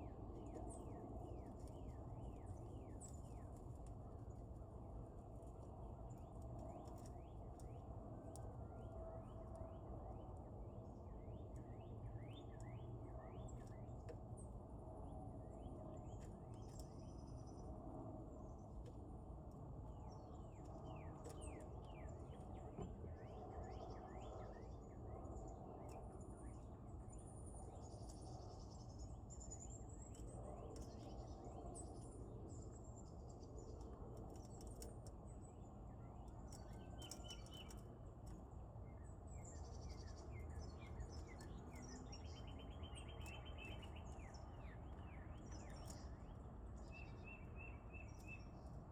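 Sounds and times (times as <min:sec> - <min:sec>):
low background noise: 0:00.0 - 0:48.9
birds chirping: 0:38.9 - 0:48.6.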